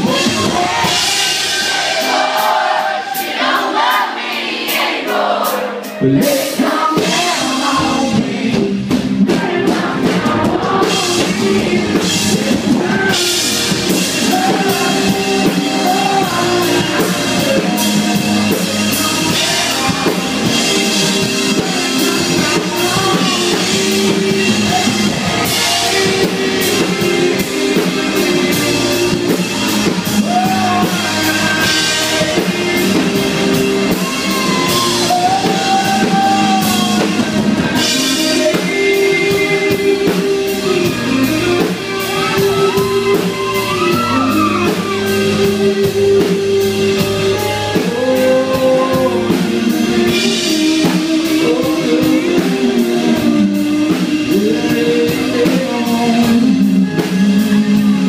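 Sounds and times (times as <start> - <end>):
live rock band playing: 0.0 - 58.0
person singing: 0.0 - 58.0.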